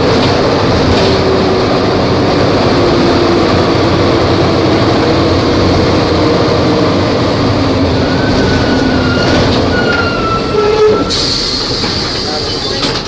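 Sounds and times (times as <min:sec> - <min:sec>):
bus engine drone: 0:00.0 - 0:13.0
bus body rattle: 0:09.1 - 0:13.0.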